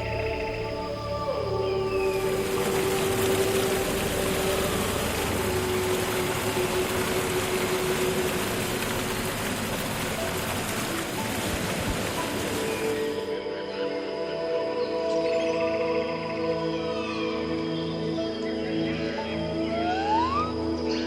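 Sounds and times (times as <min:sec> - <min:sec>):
steady rushing noise: 0:02.2 - 0:13.3.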